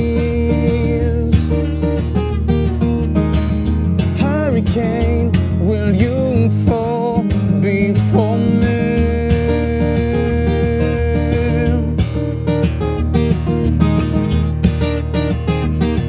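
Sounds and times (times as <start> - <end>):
person singing: 0.0 - 1.7, 4.2 - 12.0
acoustic guitar strumming: 0.0 - 16.0.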